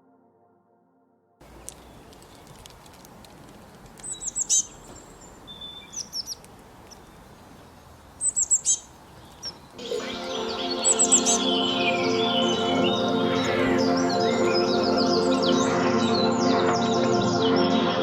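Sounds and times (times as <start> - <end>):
music with sustained tones: 0.0 - 1.8, 9.8 - 18.0
steady background hiss: 1.4 - 15.6
songbird chirping: 1.4 - 18.0.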